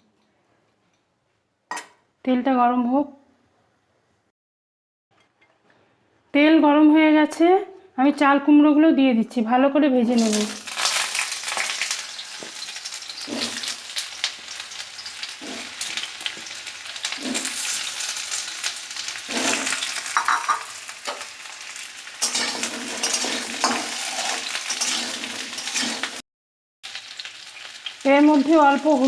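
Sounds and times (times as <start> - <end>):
vegetables sizzling in hot oil: 10.1 - 26.2, 26.8 - 29.0
spoon scraping a pan: 12.4 - 14.0, 15.0 - 18.5, 22.2 - 26.2.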